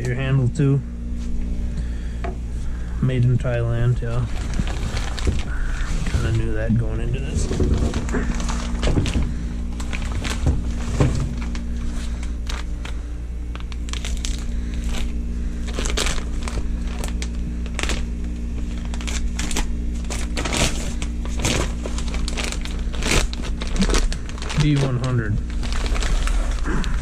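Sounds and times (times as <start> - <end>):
low hum: 0.0 - 27.0
packaging crinkling: 3.5 - 27.0.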